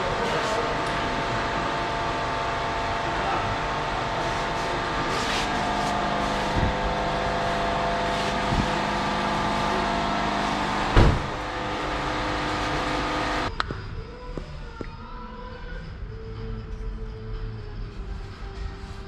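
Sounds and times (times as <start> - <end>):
mechanical running drone: 0.0 - 13.6.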